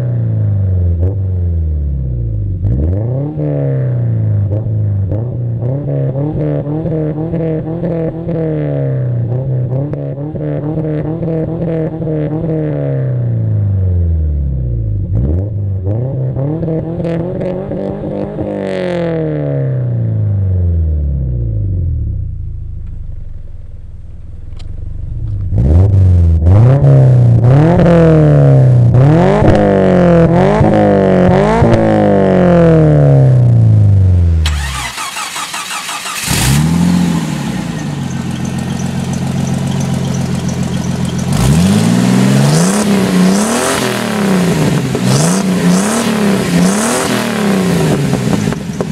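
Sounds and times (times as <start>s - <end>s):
car engine revving: 0.0s - 48.9s
car engine idling: 22.3s - 25.7s, 34.1s - 43.4s.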